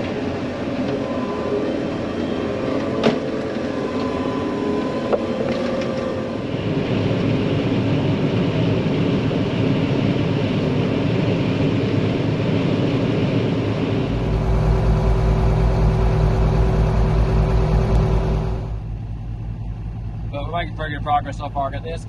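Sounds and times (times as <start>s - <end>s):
deep engine drone: 0.0s - 22.0s
harvest machinery mechanical rush: 13.8s - 19.0s.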